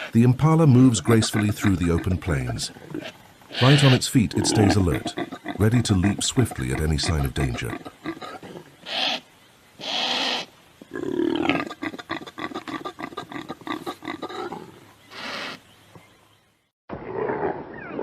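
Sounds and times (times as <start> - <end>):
wild animal harsh calls: 1.1 - 5.8, 6.4 - 15.6.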